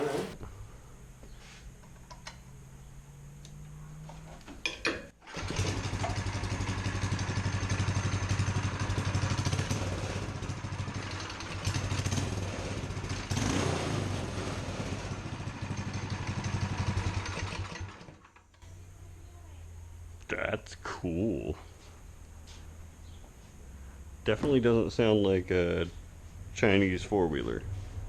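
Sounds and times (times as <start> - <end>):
go-kart engine running: 0.0 - 0.4, 5.3 - 18.3.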